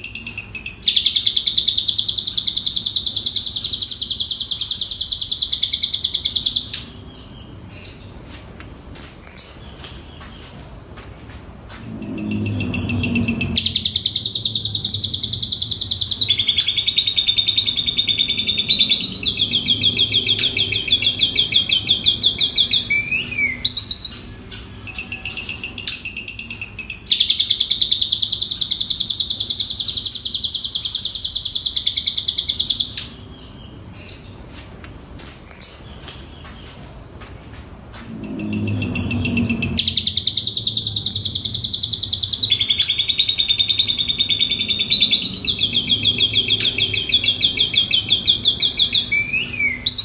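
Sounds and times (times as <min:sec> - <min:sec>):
starling singing chattering notes: 0:11.8 - 0:33.2, 0:38.0 - 0:50.0.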